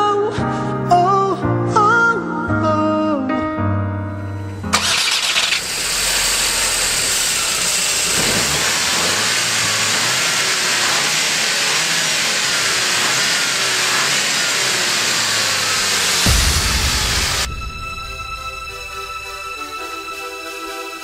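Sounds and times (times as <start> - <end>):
car engine idling and revving: 4.7 - 19.9.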